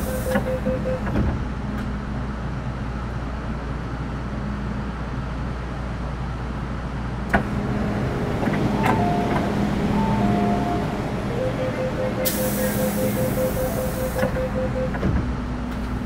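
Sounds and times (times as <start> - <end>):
train equipment hum: 0.0 - 16.0
two-pitch electronic tones: 8.8 - 14.9.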